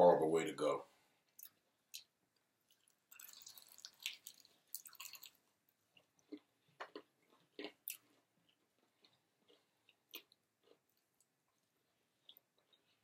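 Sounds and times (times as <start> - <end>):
crisp chewing crunches: 2.7 - 5.4.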